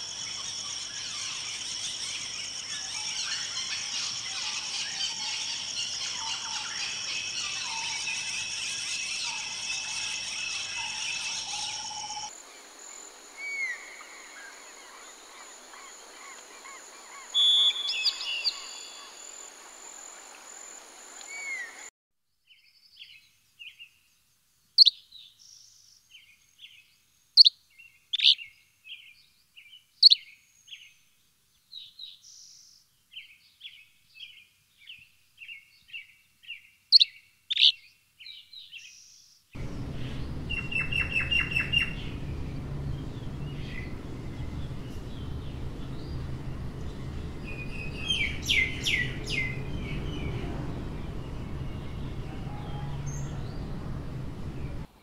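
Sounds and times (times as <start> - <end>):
songbird calls: 0.0 - 12.3, 13.4 - 19.6, 24.8 - 30.9, 33.7 - 54.9
sharp bird chirps: 17.2 - 19.2, 24.8 - 25.0, 30.0 - 30.3, 37.0 - 37.8, 39.6 - 54.9
high ringing drone: 39.6 - 54.9
low rumble: 39.6 - 54.9
rapid chattering bird calls: 39.6 - 54.9.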